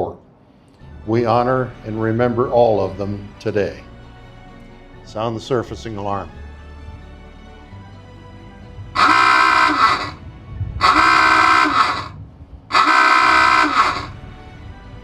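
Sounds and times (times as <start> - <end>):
alarm horn blasts: 9.0 - 10.2, 10.8 - 14.2.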